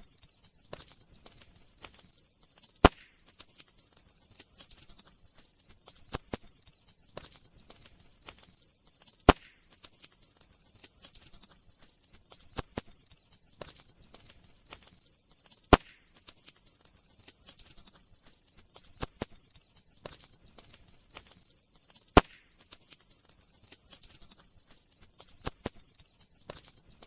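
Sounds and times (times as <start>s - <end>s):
wood fire crackling: 0.0s - 27.0s
sharp fire pops: 0.7s - 3.8s, 9.1s - 10.2s, 13.6s - 16.6s, 22.0s - 22.9s.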